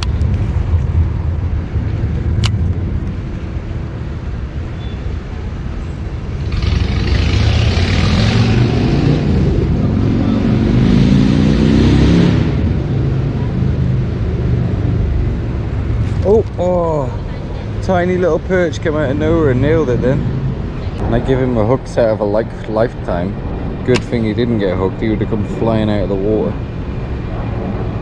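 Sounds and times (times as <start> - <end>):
vehicle engine passing by: 6.4 - 15.1
deep rumble: 19.0 - 28.0.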